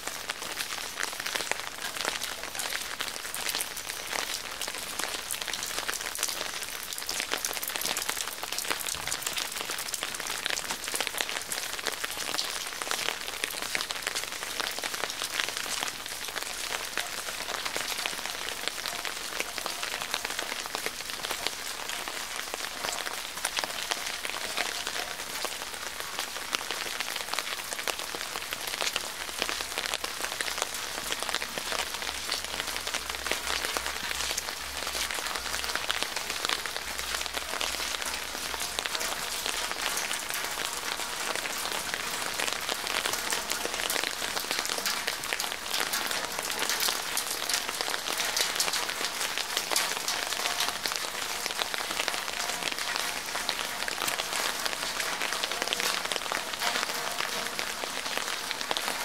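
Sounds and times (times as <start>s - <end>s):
rain on hard surfaces: 0.0s - 59.0s.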